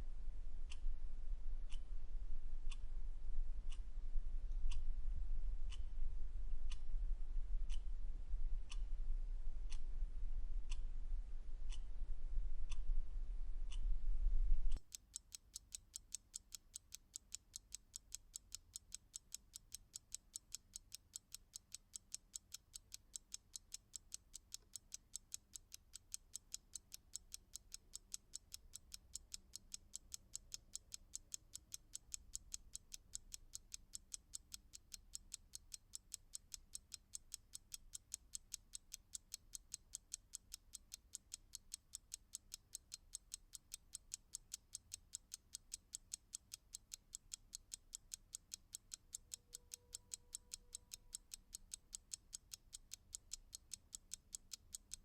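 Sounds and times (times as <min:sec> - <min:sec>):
clock ticking: 0:14.7 - 0:55.0.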